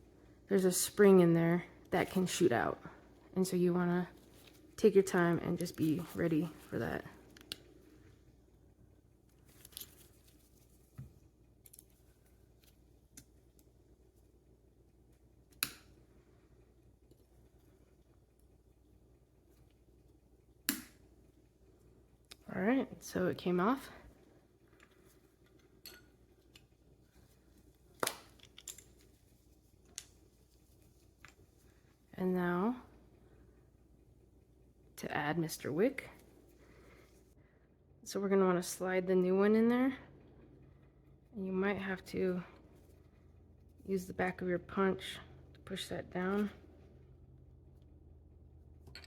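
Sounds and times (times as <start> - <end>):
faint clicks of small parts: 7.3 - 7.8, 11.4 - 13.7, 24.6 - 27.3, 28.0 - 29.2.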